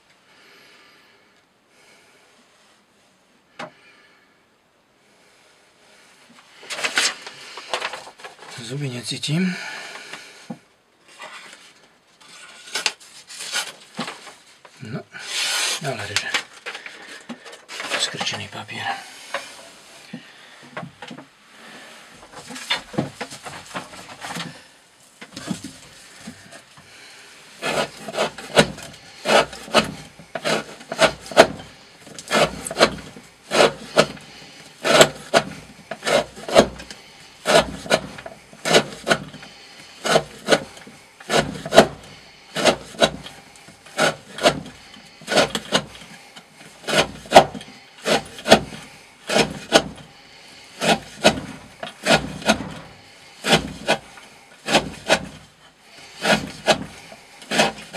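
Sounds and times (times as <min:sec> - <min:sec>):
knife slicing through rope: 0:15.2 - 0:16.4, 0:27.6 - 0:50.1, 0:50.7 - 0:57.9.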